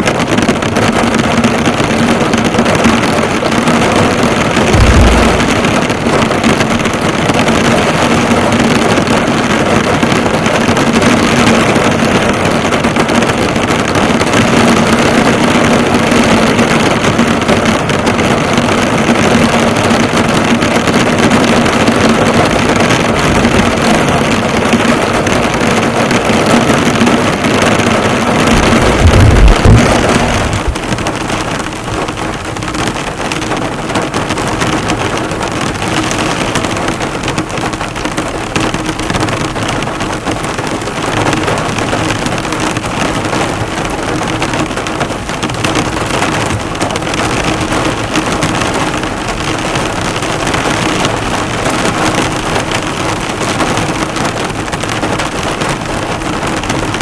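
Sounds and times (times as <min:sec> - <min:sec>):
heavy rain drumming on a car: 0:00.0 - 0:57.0
low thump: 0:04.7 - 0:07.0, 0:28.5 - 0:31.1.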